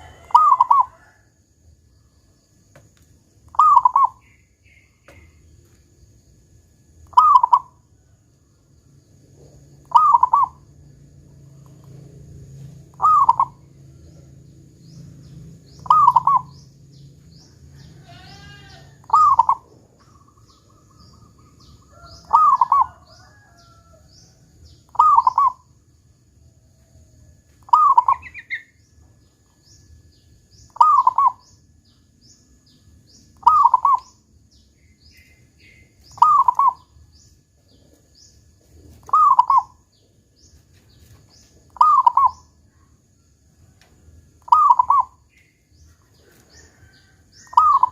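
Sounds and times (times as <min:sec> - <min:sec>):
dove cooing: 0:00.0 - 0:01.2, 0:03.5 - 0:04.4, 0:07.1 - 0:07.8, 0:09.3 - 0:10.6, 0:12.6 - 0:14.3, 0:15.6 - 0:16.7, 0:17.7 - 0:23.5, 0:24.9 - 0:25.7, 0:27.7 - 0:28.6, 0:30.8 - 0:31.4, 0:33.4 - 0:34.1, 0:35.7 - 0:36.9, 0:38.8 - 0:39.8, 0:41.7 - 0:42.5, 0:44.4 - 0:45.2, 0:46.0 - 0:47.9
small birds chirping: 0:01.8 - 0:08.1, 0:08.9 - 0:26.2, 0:27.5 - 0:47.9.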